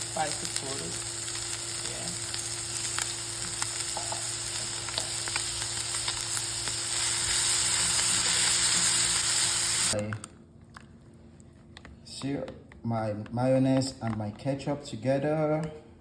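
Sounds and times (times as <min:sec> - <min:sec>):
meat sizzling in a frying pan: 0:00.0 - 0:10.0.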